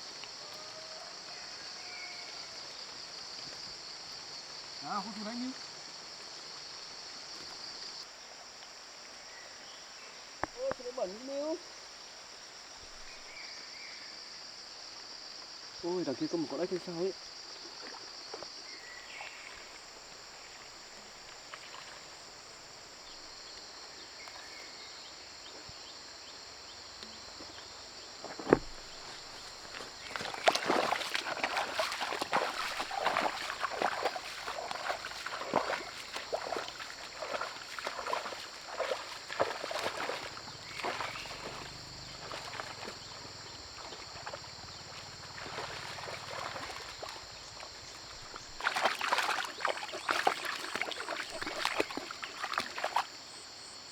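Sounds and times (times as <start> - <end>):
crickets chirring: 0.0 - 53.9
footsteps sloshing through water: 16.8 - 24.6, 27.2 - 53.4.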